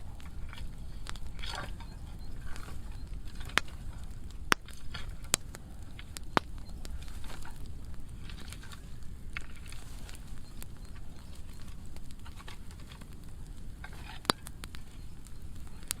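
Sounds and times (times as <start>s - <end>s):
wood fire crackling: 0.0s - 16.0s
loud sharp pops: 3.3s - 7.4s.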